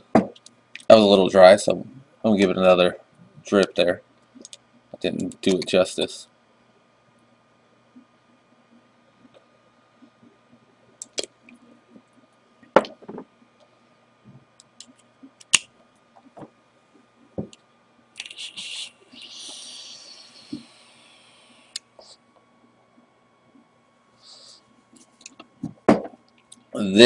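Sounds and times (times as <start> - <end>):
coil crackling and hissing: 13.4 - 25.6.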